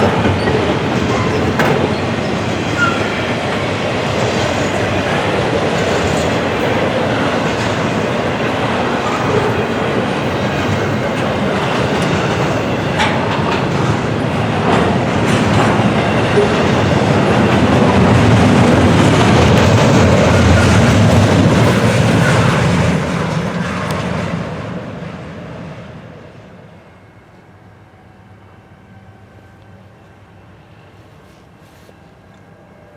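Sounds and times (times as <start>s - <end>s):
train wheels rumbling on rails: 0.0s - 27.8s.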